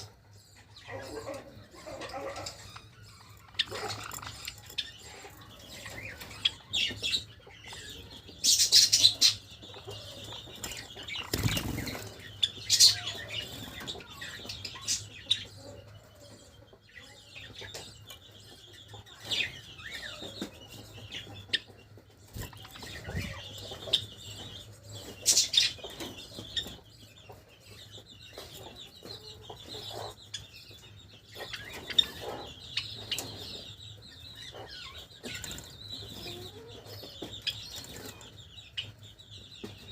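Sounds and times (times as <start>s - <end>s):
birds fluttering wings: 11.2s - 12.1s.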